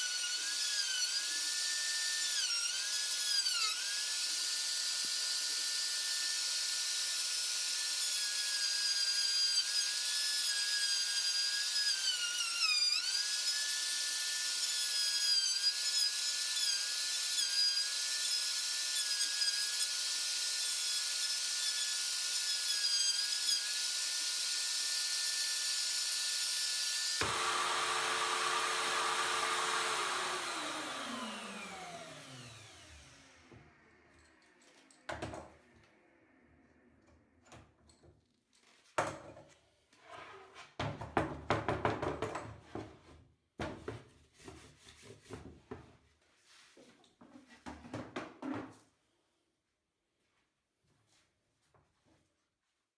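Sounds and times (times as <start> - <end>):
router bit cutting wood: 0.0 - 34.9
electric wood router whining: 8.0 - 35.5.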